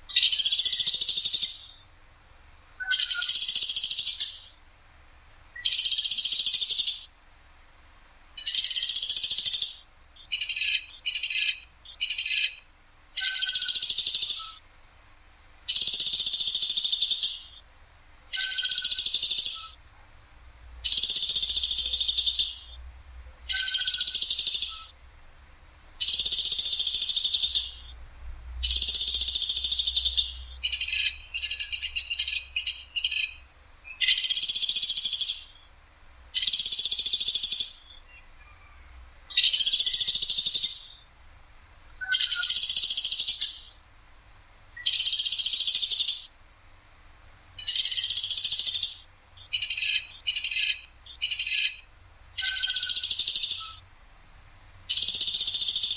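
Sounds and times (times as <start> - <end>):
woodpecker rattling calls: 0.1 - 1.9, 2.8 - 4.6, 5.6 - 7.1, 8.4 - 14.6, 15.7 - 17.6, 18.3 - 19.8, 20.6 - 25.0, 25.8 - 35.7, 36.4 - 38.6, 39.3 - 41.1, 41.9 - 43.8, 44.8 - 46.4, 47.6 - 53.8, 54.8 - 55.9.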